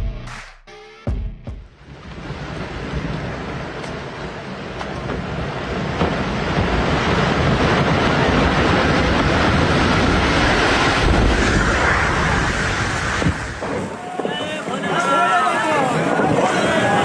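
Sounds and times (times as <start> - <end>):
loud steady rushing noise: 6.0 - 17.0.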